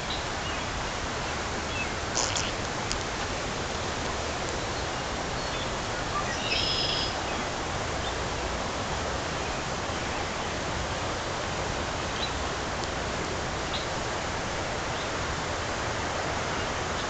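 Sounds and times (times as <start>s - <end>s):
floodwater rushing: 0.0s - 6.4s
high chirp: 2.2s - 2.6s.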